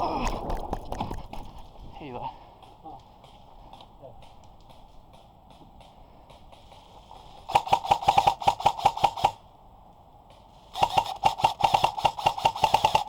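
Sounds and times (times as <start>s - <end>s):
airsoft gun full-auto bursts: 6.4s - 9.5s, 10.7s - 13.0s.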